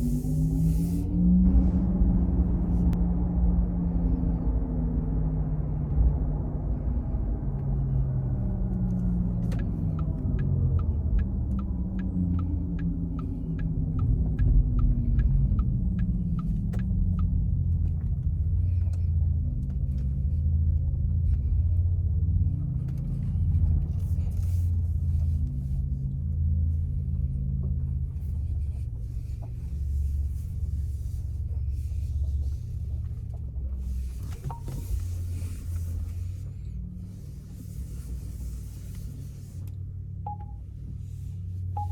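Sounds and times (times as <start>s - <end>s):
road and tyre rumble: 0.0s - 41.9s
turn signal ticking: 7.6s - 38.6s, 40.2s - 41.0s, 41.6s - 41.9s.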